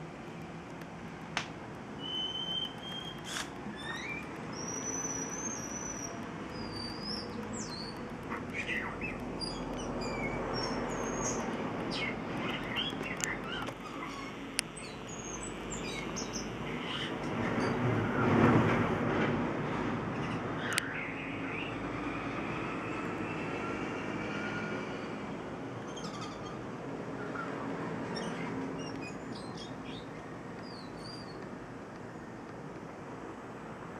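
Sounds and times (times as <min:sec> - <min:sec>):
bird whistled notes: 0:02.0 - 0:07.9.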